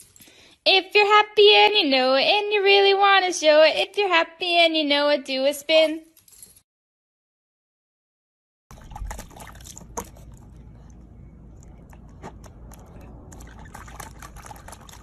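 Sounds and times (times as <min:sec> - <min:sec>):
puppy splashing and slurping water: 0:08.7 - 0:15.0.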